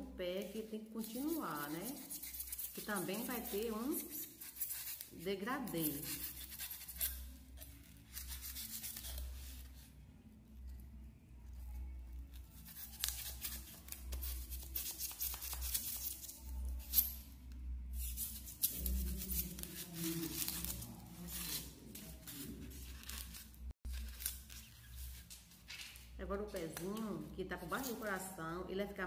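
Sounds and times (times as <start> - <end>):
knife cutting styrofoam: 1.0 - 9.5, 12.6 - 17.0, 18.0 - 23.3.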